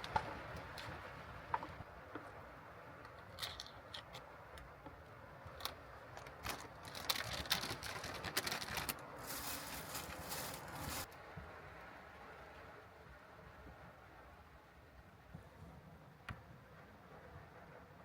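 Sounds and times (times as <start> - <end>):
objects clicking and scraping: 3.1 - 4.3, 5.6 - 11.1
rustling swish: 7.9 - 11.1.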